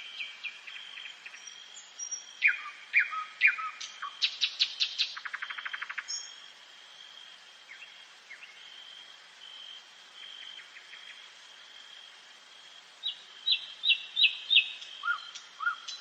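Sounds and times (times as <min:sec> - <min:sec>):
nightingale singing: 0:00.0 - 0:06.6, 0:13.0 - 0:16.0.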